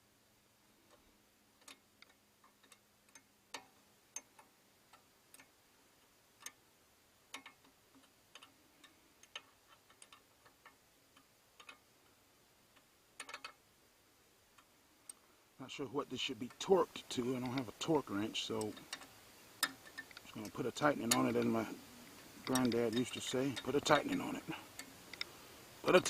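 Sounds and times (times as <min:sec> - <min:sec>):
wrench clicking on metal bolts: 0:01.6 - 0:04.5, 0:07.3 - 0:13.6, 0:16.5 - 0:21.7, 0:22.4 - 0:25.3.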